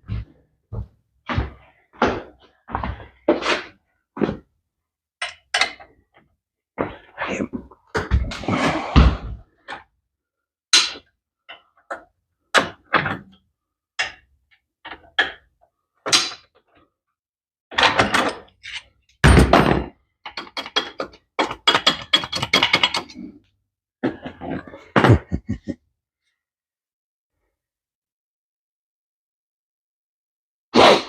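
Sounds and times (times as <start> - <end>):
metal tools knocking on metal: 20.3 - 23.2.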